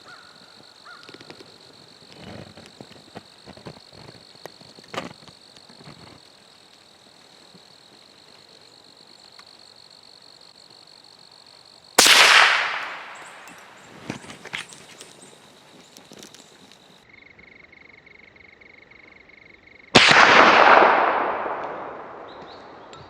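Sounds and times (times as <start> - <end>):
faint rustles and clicks: 1.0 - 8.7, 13.3 - 17.0
gunshot with echo: 12.0 - 13.7, 20.0 - 23.0.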